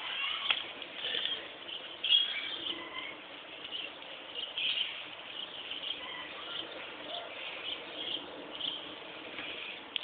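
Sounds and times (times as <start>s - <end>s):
small bird chirping: 0.0s - 10.0s.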